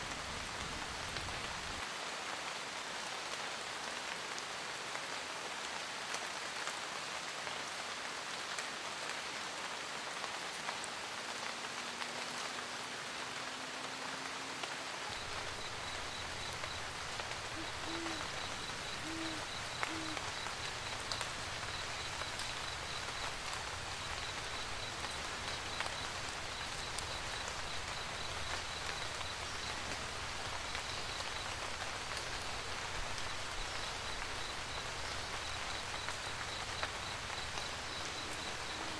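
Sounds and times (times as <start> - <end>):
rain pattering: 0.0 - 38.9
owl hooting: 15.1 - 29.6, 34.0 - 38.9
faint high-pitched chirping: 15.1 - 30.0.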